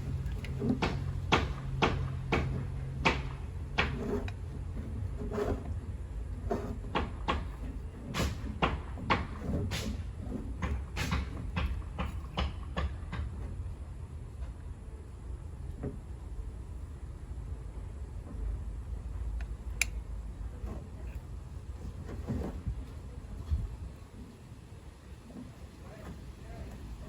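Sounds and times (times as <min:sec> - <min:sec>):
hard objects knocking: 0:00.0 - 0:13.5
low steady hum: 0:00.0 - 0:27.0.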